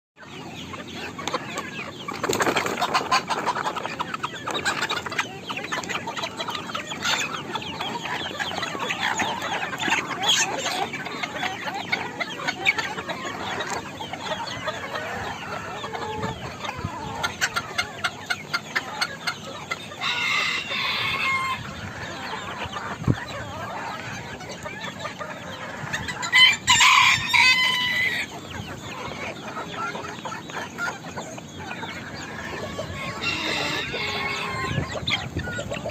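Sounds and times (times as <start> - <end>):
chickens clucking: 0.2 - 35.9
rooster crowing: 20.0 - 21.6, 26.3 - 28.3, 32.9 - 34.9.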